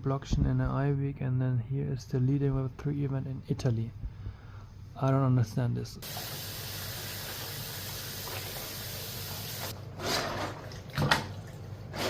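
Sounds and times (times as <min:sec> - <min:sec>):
running water rushing: 0:06.0 - 0:09.7.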